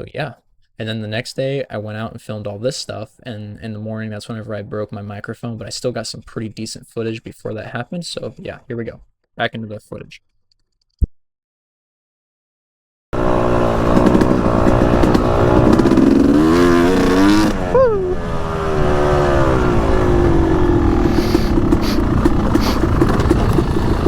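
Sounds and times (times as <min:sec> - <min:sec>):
dirt bike engine revving: 0:13.2 - 0:24.0.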